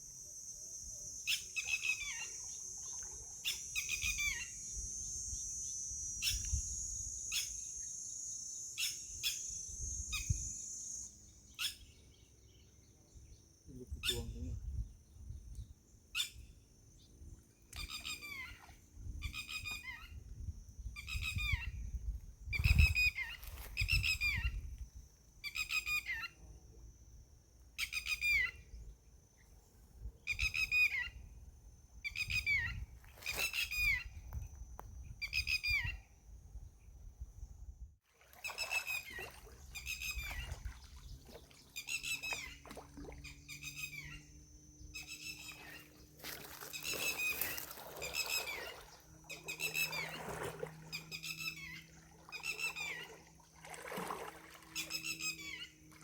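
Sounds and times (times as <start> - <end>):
bird calling: 1.0 - 12.2, 38.5 - 53.3, 54.6 - 56.0.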